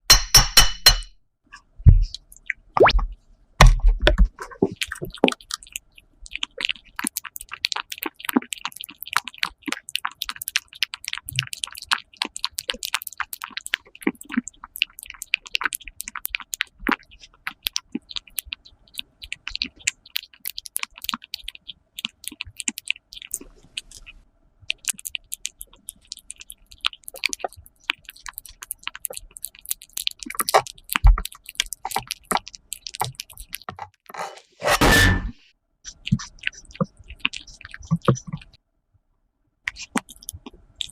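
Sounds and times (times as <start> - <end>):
cat chewing with wet clicks: 4.7 - 33.7, 35.9 - 38.6.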